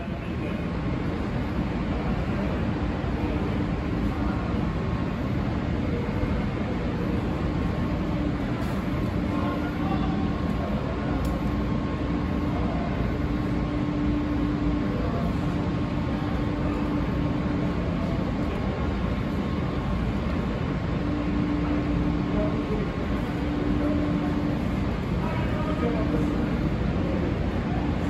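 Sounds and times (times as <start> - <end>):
rumbling rail machinery: 0.0 - 28.0.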